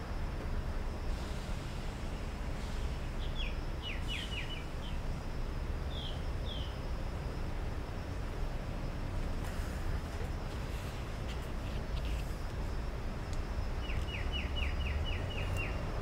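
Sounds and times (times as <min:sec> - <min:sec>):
small bird chirping: 0:13.8 - 0:15.9.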